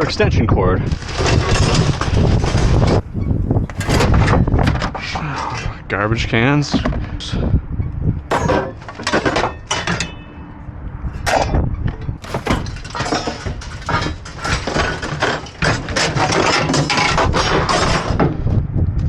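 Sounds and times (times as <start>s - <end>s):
junk clattering in a dumpster: 1.2s - 5.3s, 8.3s - 10.2s, 11.0s - 18.1s.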